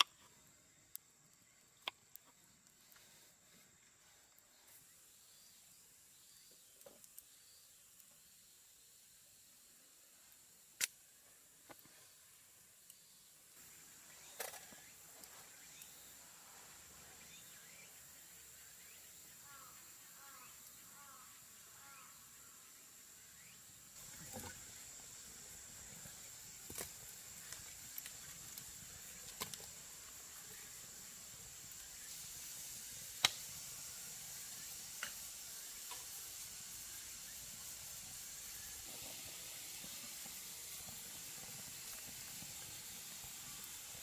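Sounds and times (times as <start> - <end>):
faint steady hiss: 0.0 - 44.0.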